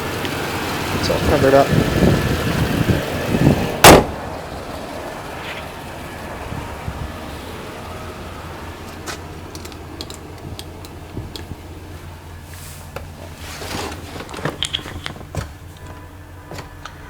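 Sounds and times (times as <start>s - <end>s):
car engine idling: 0.0s - 17.0s
clicks and knocks from handling: 14.2s - 16.0s.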